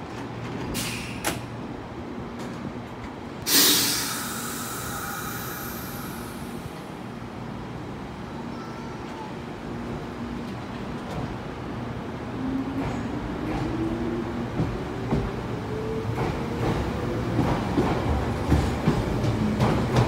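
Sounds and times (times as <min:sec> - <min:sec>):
air brakes releasing hiss: 0:00.8 - 0:01.4, 0:03.4 - 0:06.8
short air hiss: 0:03.5 - 0:06.8.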